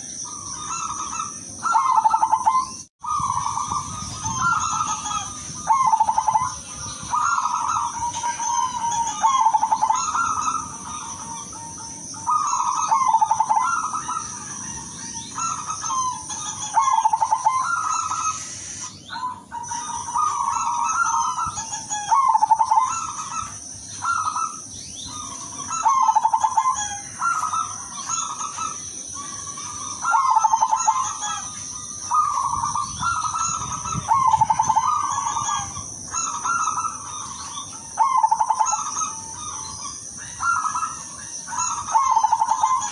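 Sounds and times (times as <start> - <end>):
dove cooing: 0.0 - 42.9
high-pitched hiss: 18.0 - 19.1.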